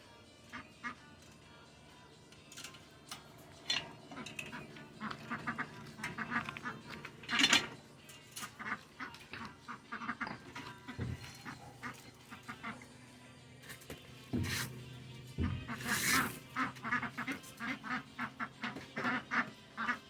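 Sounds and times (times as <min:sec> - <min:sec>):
ducks quacking: 0:00.5 - 0:01.1, 0:03.7 - 0:12.9, 0:15.4 - 0:20.0.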